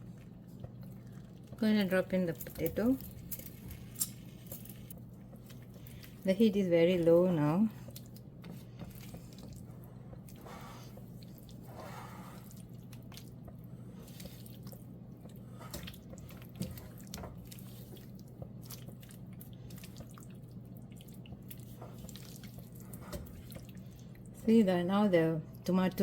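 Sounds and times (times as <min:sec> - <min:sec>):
sauce bubbling in a pot: 0:07.4 - 0:24.4.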